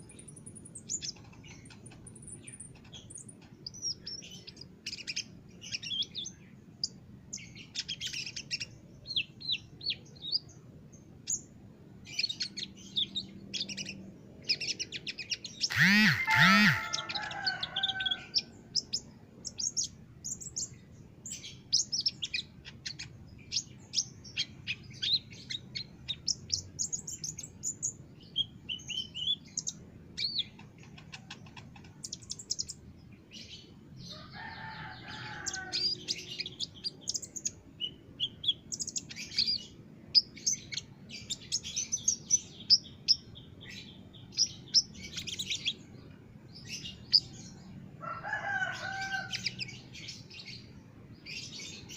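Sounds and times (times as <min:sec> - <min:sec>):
bird high chirps and trills: 0:00.0 - 0:51.9
lower-pitched bird call: 0:15.5 - 0:18.5.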